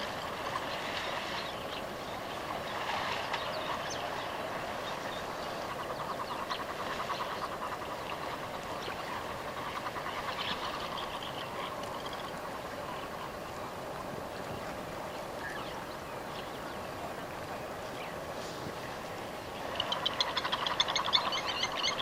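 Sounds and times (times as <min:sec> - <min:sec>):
steady hiss: 0:00.0 - 0:22.0
animal chirps and calls: 0:19.7 - 0:22.0.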